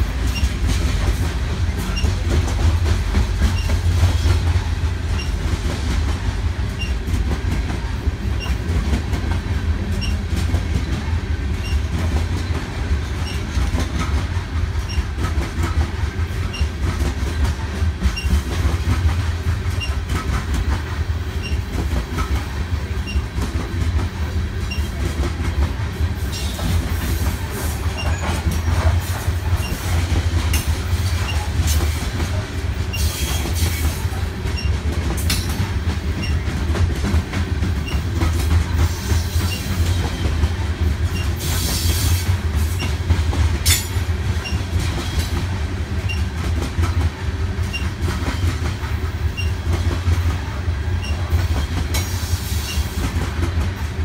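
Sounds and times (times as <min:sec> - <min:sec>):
train cars rumbling: 0:00.0 - 0:54.0
wheels clacking over rail joints: 0:00.0 - 0:54.0.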